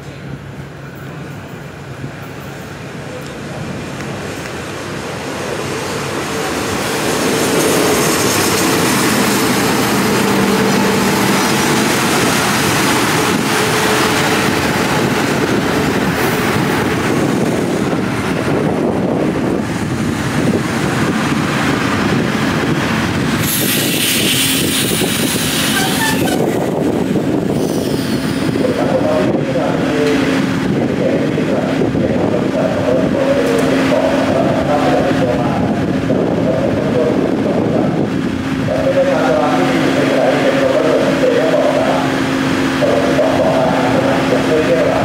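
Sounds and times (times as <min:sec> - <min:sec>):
train engine hum: 0:00.0 - 0:45.0
wheel rumble on rails: 0:04.0 - 0:27.6
loud hiss: 0:23.4 - 0:26.0.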